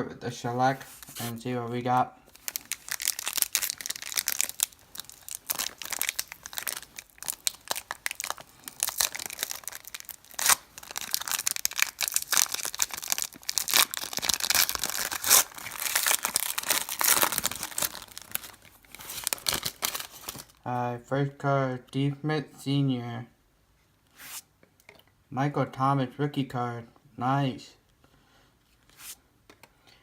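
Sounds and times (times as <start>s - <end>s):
foil wrapper tearing and crinkling: 0.8s - 1.4s, 2.3s - 20.6s.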